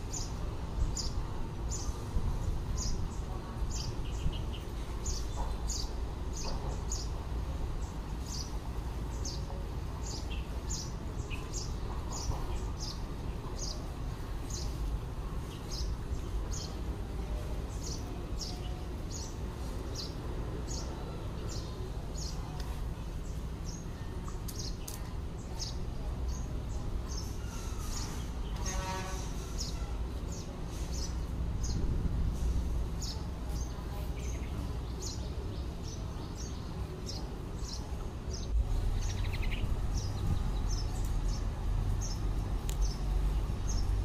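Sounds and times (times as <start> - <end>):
bird chirping: 33.0 - 44.0
low background rumble: 37.2 - 44.0.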